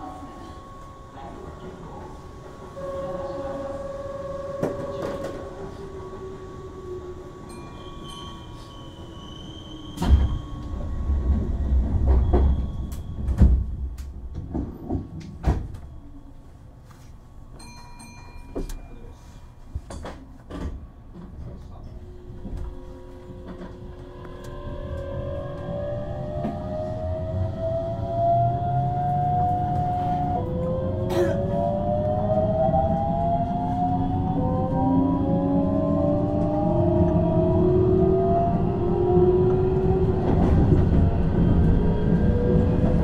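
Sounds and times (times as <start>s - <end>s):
train rumbling and knocks: 0.0s - 16.2s, 17.6s - 19.1s, 19.7s - 43.0s
train motor whine: 22.1s - 28.4s.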